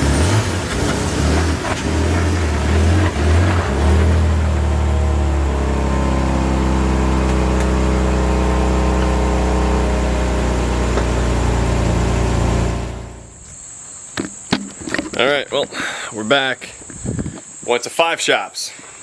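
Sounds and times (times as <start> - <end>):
car engine running: 0.0 - 13.5.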